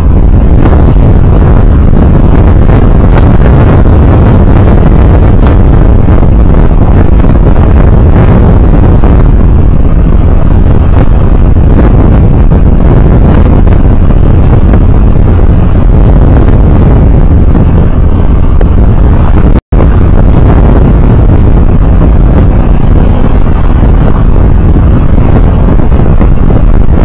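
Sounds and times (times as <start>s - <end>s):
road noise from moving vehicle: 0.0s - 27.0s
wind buffeting microphone: 0.0s - 27.0s.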